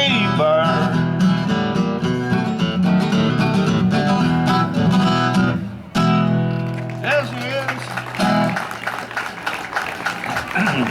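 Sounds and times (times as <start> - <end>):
strummed acoustic guitar: 0.0 - 7.6
live country band playing: 0.0 - 10.9.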